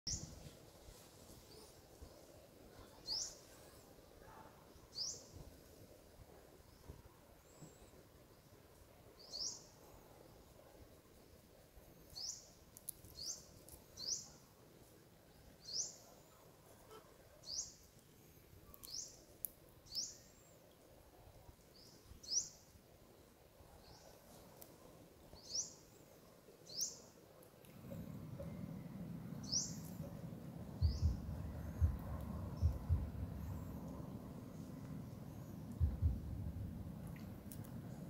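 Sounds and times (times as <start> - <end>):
faint outdoor background: 0.0 - 38.0
bird chirping: 9.2 - 9.8, 27.9 - 36.7
low rumble: 27.7 - 38.0.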